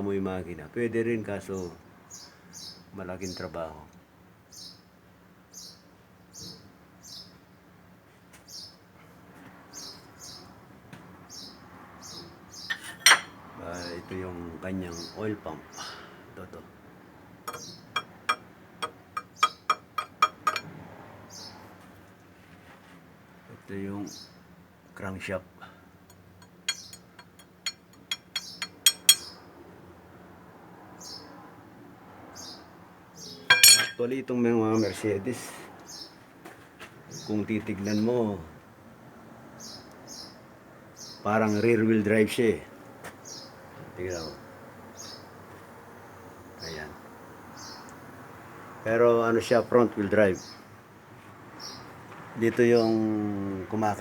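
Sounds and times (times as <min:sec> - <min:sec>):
small bird chirping: 0:11.3 - 0:13.2, 0:17.5 - 0:20.6, 0:26.4 - 0:29.4, 0:46.5 - 0:48.0
metal engine parts clinking: 0:12.7 - 0:13.4, 0:17.5 - 0:20.7, 0:26.1 - 0:29.3, 0:33.5 - 0:34.0.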